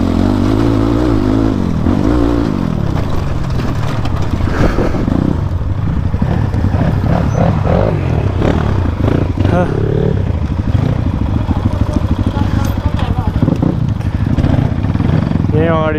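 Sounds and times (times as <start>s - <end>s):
motorcycle engine revving: 0.0s - 15.9s
motorcycle rattling over rough ground: 0.0s - 15.9s.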